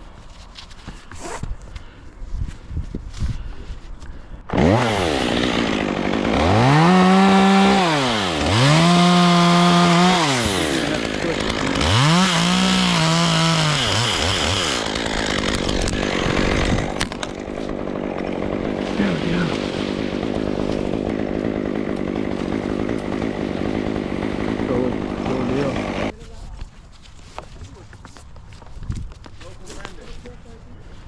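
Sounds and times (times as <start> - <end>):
chainsaw revving: 4.5 - 26.1.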